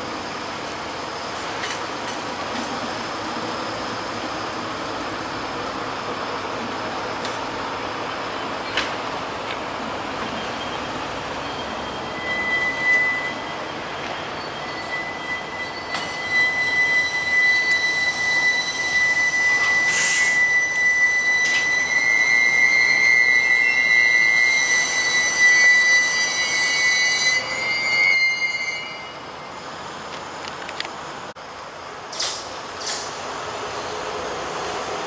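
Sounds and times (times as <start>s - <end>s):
train running by: 0.0s - 35.0s
high-pitched squeal: 10.4s - 29.9s.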